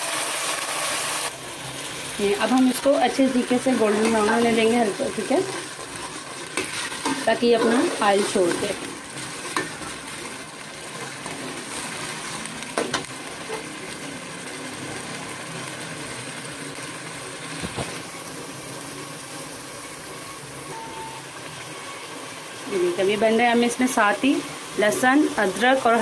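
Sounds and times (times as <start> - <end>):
onion paste sizzling in oil: 0.0 - 26.0.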